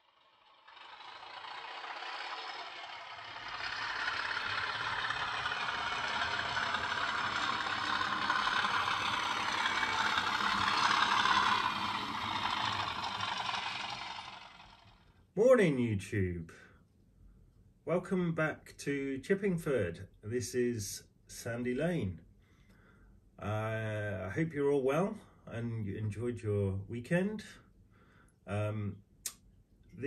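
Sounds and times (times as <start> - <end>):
train rattling along track: 1.2 - 14.9.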